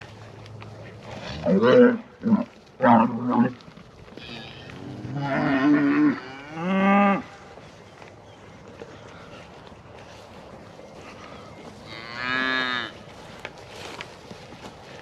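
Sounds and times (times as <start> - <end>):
cattle mooing: 1.2 - 7.3, 11.8 - 13.0.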